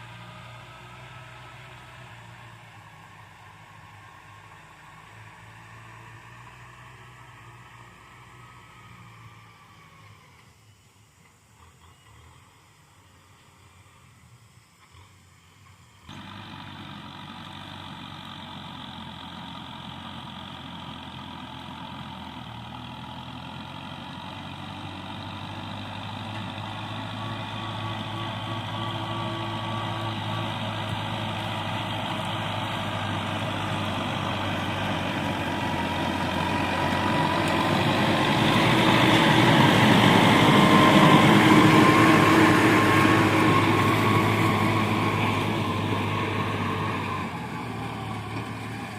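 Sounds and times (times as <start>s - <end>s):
tractor engine plowing: 15.5s - 48.9s.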